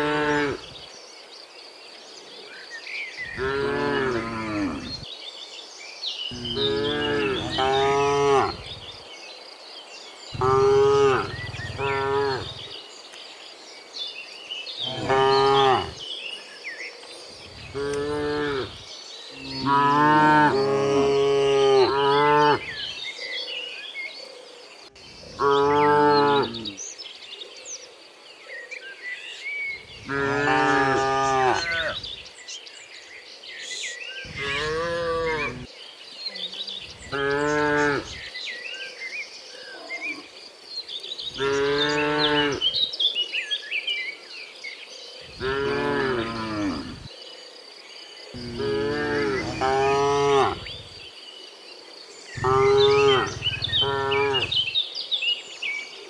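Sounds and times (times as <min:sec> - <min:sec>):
birds chirping: 0:00.0 - 0:01.4, 0:02.0 - 0:47.4, 0:48.0 - 0:56.0
cattle mooing: 0:03.4 - 0:05.0, 0:06.3 - 0:08.7, 0:10.4 - 0:12.6, 0:30.0 - 0:32.0, 0:34.3 - 0:35.7, 0:48.4 - 0:50.7, 0:52.4 - 0:54.7.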